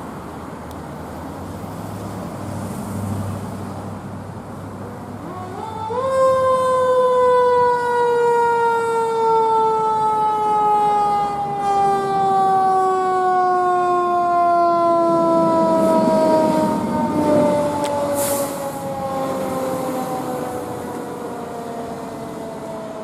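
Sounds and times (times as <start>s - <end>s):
fire engine siren wailing: 5.0s - 23.0s.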